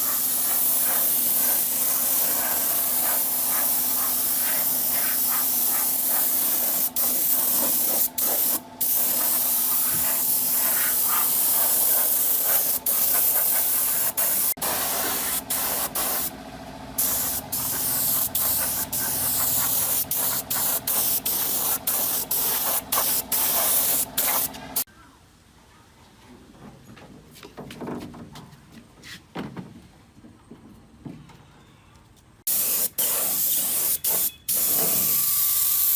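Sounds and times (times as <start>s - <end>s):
spray gun hissing: 0.0s - 16.3s, 17.0s - 24.9s, 32.5s - 35.9s.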